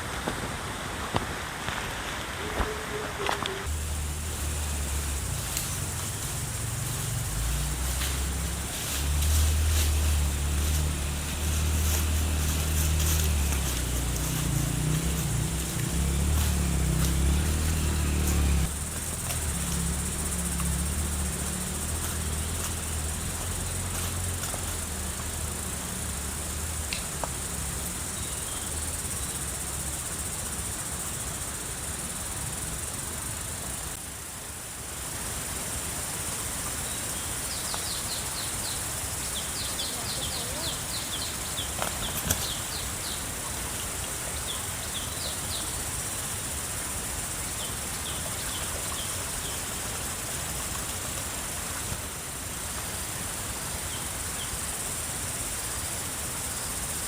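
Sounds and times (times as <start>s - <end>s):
insects buzzing: 0.0s - 57.0s
heavy low rumble: 3.6s - 29.8s.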